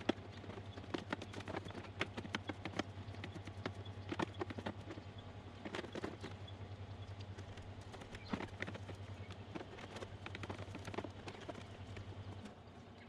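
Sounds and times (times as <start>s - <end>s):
hand tools clicking and tapping: 0.0s - 6.4s, 7.0s - 12.5s
steady low hum: 0.0s - 13.0s.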